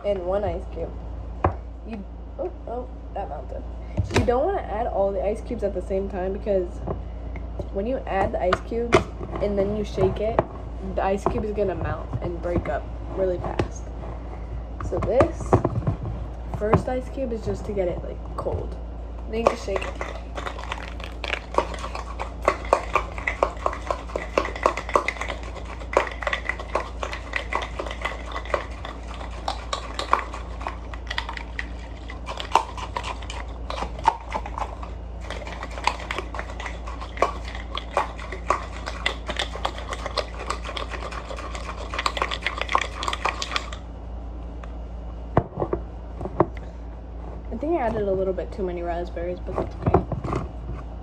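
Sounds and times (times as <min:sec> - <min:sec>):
ice rattling in shaken cup: 0:19.3 - 0:43.8.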